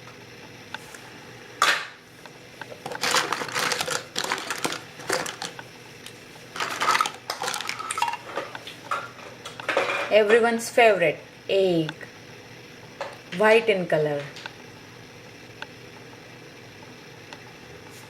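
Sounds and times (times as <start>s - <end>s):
small hard objects clattering: 2.8s - 5.6s, 6.6s - 9.1s.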